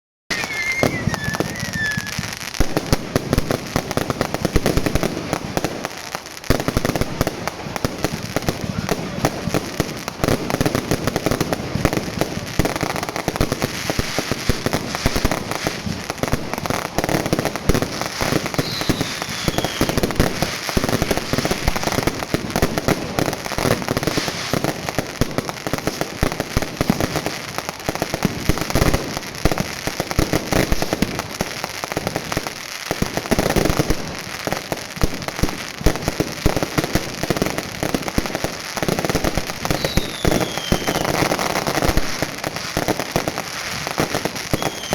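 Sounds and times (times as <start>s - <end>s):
falling firework whistle: 0.3s - 3.4s, 18.0s - 22.0s, 39.6s - 42.9s, 43.6s - 44.9s
fireworks bangs and crackling: 0.3s - 44.9s.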